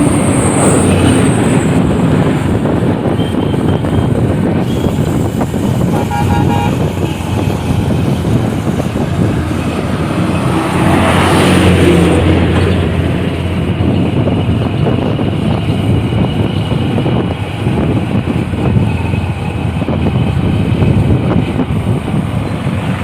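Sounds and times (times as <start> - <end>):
road traffic noise: 0.0 - 23.0
vehicle passing: 5.2 - 15.0
vehicle horn beeps: 5.8 - 7.8.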